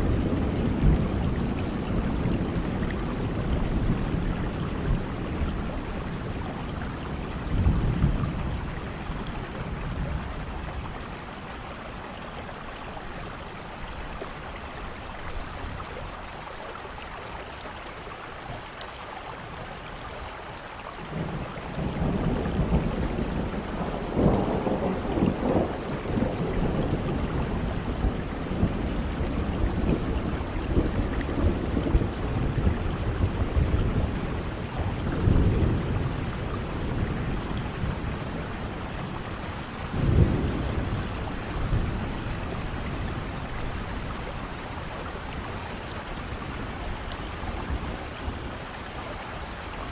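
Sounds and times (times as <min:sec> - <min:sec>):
rolling thunder: 0:00.0 - 0:12.0, 0:21.1 - 0:48.7
steady rain: 0:00.0 - 0:49.9.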